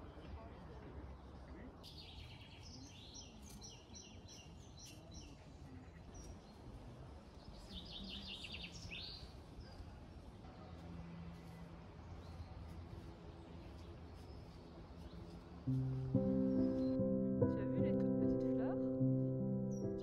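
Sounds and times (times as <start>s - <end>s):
outdoor background noise: 0.0s - 20.0s
songbirds singing: 1.8s - 10.2s, 13.4s - 20.0s.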